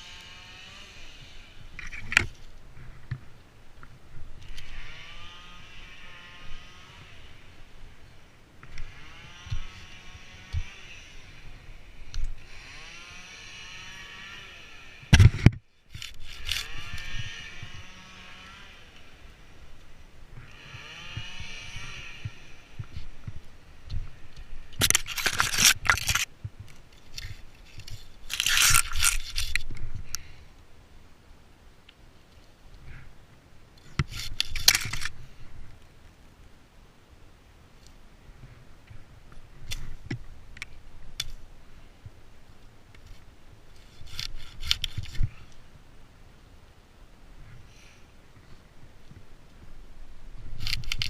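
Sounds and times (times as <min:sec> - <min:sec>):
distant chainsaw revving: 0:00.0 - 0:01.6, 0:04.5 - 0:07.6, 0:08.8 - 0:11.7, 0:12.4 - 0:15.2, 0:16.6 - 0:19.4, 0:20.4 - 0:22.8
loud scraping crunching noises: 0:00.0 - 0:03.3, 0:04.3 - 0:30.4, 0:33.8 - 0:35.5, 0:43.0 - 0:45.5, 0:50.4 - 0:51.0.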